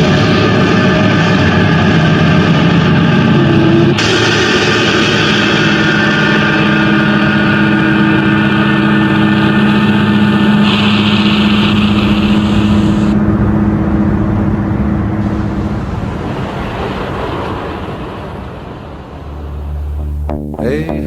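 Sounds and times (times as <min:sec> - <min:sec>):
road and wind hiss: 0:00.0 - 0:20.2
car engine running: 0:01.8 - 0:15.4, 0:19.2 - 0:20.8.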